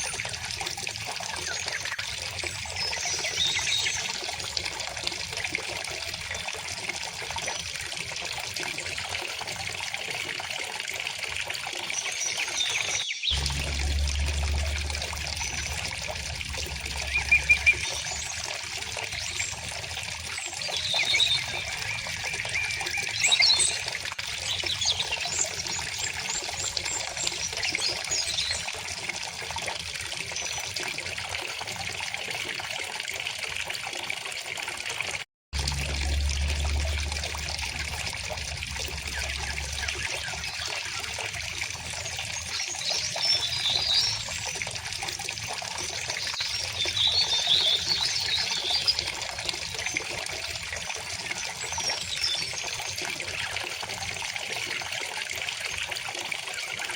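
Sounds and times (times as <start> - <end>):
stream water flowing: 0.0 - 56.9
songbirds chirping: 12.2 - 19.8.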